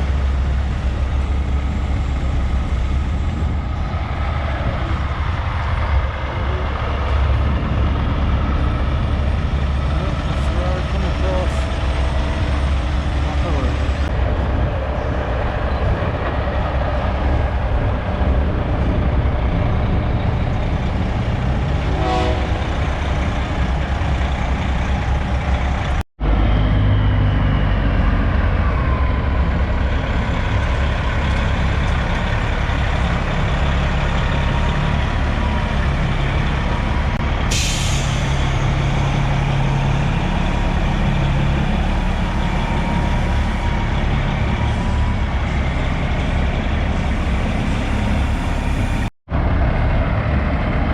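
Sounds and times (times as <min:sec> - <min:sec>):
truck diesel engines running: 0:00.0 - 0:50.9
air brake hiss: 0:37.5 - 0:38.4.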